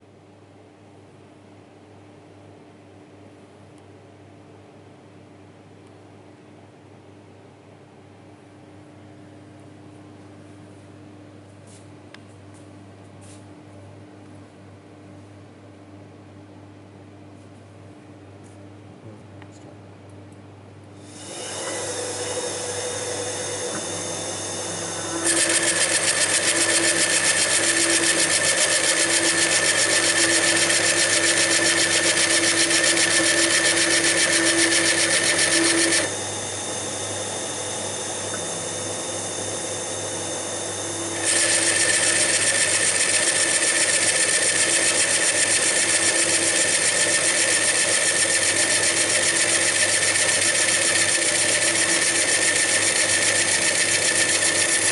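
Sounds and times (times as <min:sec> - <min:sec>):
lathe running: 0:21.0 - 0:54.9
lathe tool cutting wood: 0:21.0 - 0:54.9.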